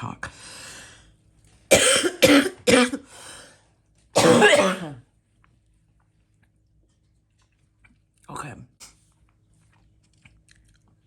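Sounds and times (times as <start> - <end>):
woman coughing: 1.7 - 3.1, 4.2 - 5.0.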